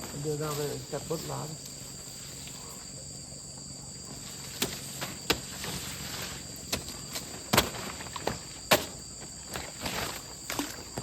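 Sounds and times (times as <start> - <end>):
insects droning: 0.0 - 11.0
blade chopping leaves: 4.2 - 11.0.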